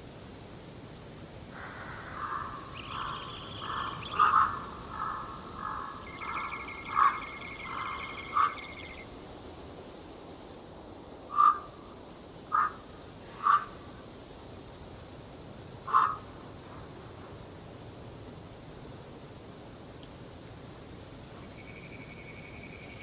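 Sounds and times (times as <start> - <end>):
loud sharp animal calls: 1.6 - 9.0, 11.3 - 11.7, 12.5 - 12.8, 13.4 - 13.8, 15.9 - 16.3
short repeated animal calls: 1.6 - 9.0, 13.4 - 13.8.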